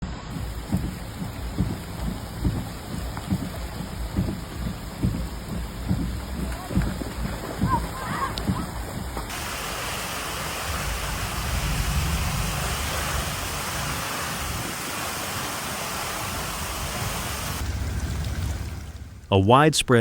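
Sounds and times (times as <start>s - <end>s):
rushing storm water: 0.0s - 19.0s
low rumble: 10.4s - 14.7s, 17.6s - 19.3s.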